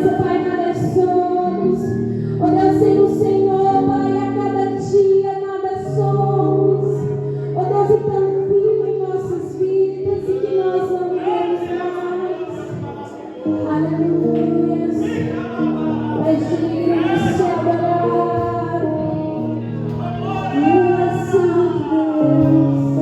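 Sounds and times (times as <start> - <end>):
keyboard chords: 0.0 - 23.0
voices singing: 9.3 - 23.0.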